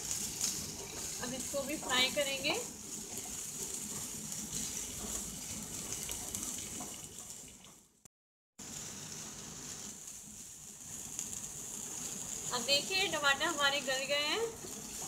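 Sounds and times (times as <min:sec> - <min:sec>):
wooden spatula stirring: 0:00.0 - 0:07.7
vegetables sizzling in oil: 0:00.0 - 0:08.0, 0:08.6 - 0:15.0.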